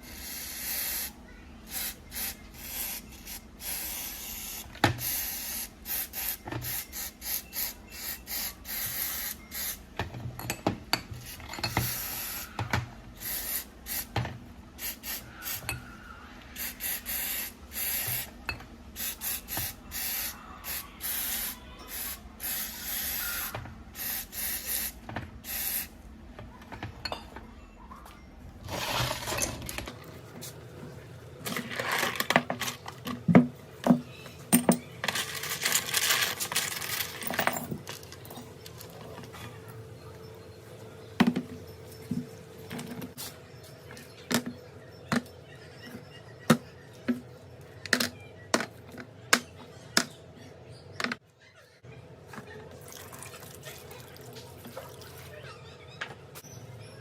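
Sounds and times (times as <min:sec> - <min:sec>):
hard parts clicking and knocking: 0:31.4 - 0:39.6.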